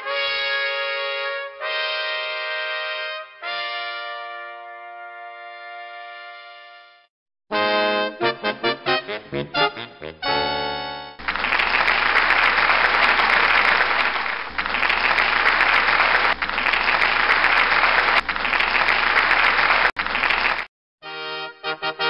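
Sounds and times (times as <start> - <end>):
music: 0.0 - 11.2, 21.0 - 22.0
crowd applauding: 11.2 - 20.7.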